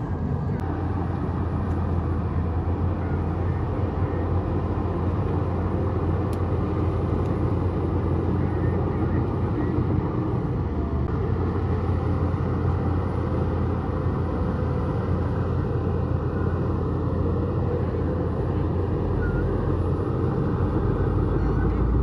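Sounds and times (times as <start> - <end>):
bulldozer diesel engine rumbling: 0.0 - 22.0.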